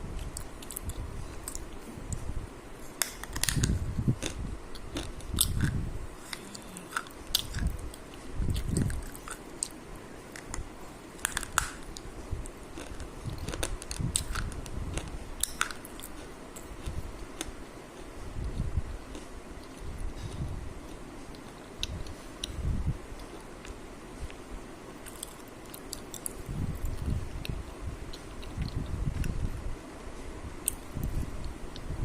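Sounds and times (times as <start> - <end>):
person chewing crunchy food: 0.2 - 1.9, 3.0 - 23.8, 25.0 - 29.4
muffled mouth sounds: 3.7 - 9.8.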